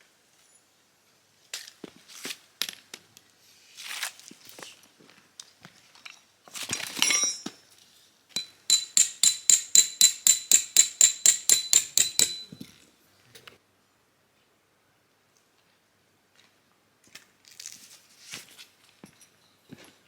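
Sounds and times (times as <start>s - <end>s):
hammer blows on metal: 8.4s - 12.6s.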